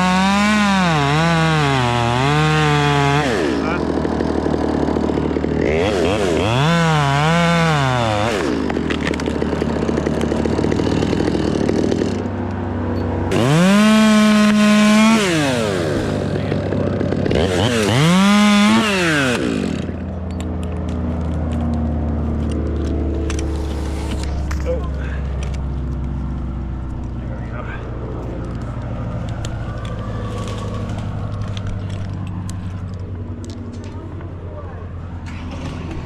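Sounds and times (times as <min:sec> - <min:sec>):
chainsaw idling and revving: 0:00.0 - 0:33.6.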